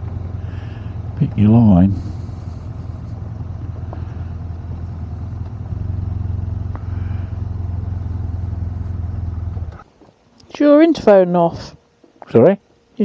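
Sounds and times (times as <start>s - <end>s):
motorcycle engine running: 0.0s - 9.9s.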